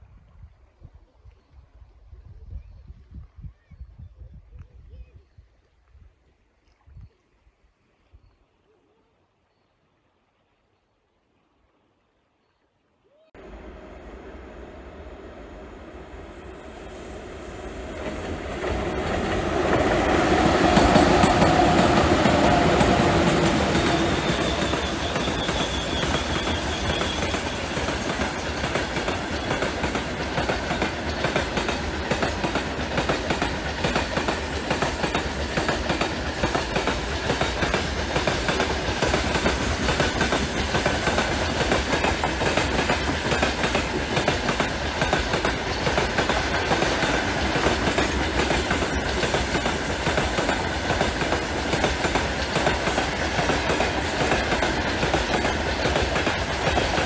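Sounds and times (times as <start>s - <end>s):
train rail rumble: 13.4s - 57.0s
wagon wheels clickety-clack: 18.0s - 57.0s.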